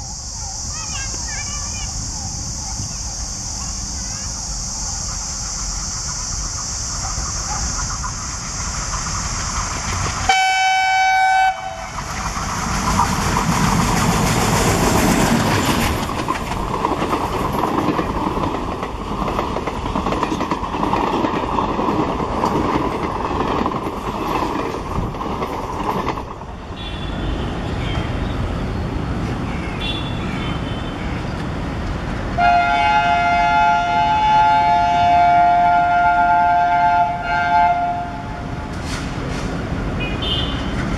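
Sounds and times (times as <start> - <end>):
train rumble and wheel clatter: 0.0 - 40.9
locomotive horn blast: 10.3 - 12.0, 26.8 - 28.1, 32.4 - 38.5, 40.0 - 40.8.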